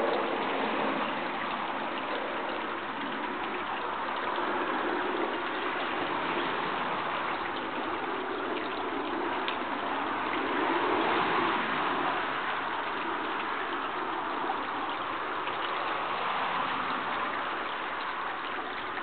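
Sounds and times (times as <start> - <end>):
stream rushing and trickling: 0.0 - 19.0.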